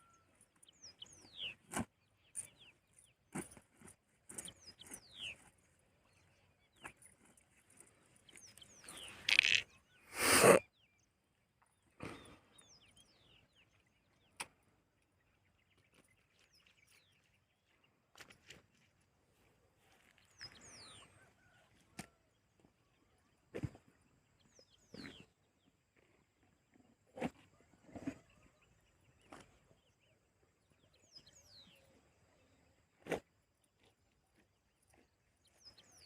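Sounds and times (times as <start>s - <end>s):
birds chirping: 4.3s - 11.1s.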